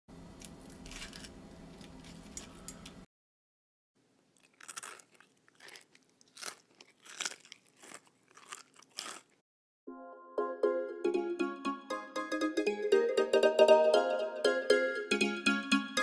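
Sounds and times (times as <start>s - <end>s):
crunchy chewing: 4.4s - 9.4s
plucked string music: 9.9s - 16.0s.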